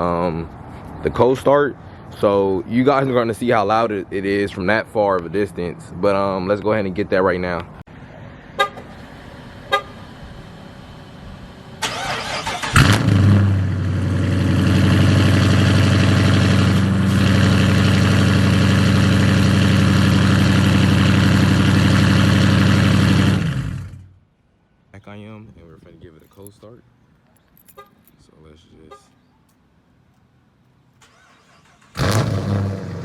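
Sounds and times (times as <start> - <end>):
car engine starting and idling: 8.6 - 24.2, 30.9 - 33.0.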